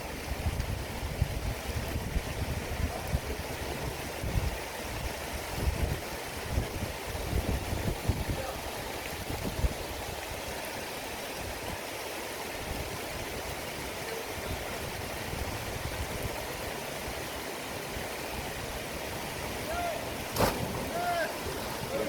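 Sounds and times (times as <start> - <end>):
river water rushing: 7.0 - 22.0.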